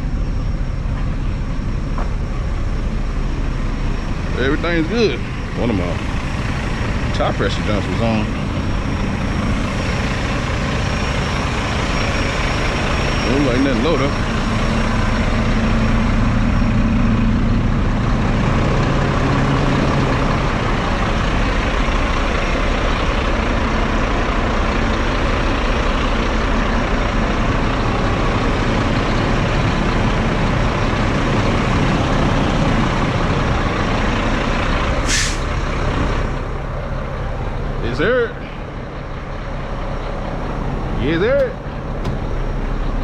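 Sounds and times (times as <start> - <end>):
diesel truck engine idling: 0.0 - 43.0
short high hiss: 35.1 - 35.5.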